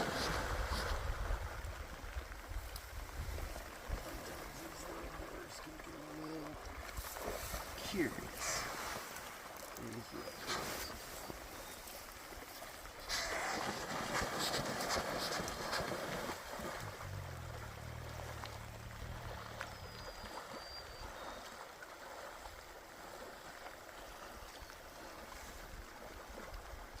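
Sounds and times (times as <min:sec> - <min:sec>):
river water flowing: 0:00.0 - 0:27.0
low hum: 0:16.5 - 0:21.4.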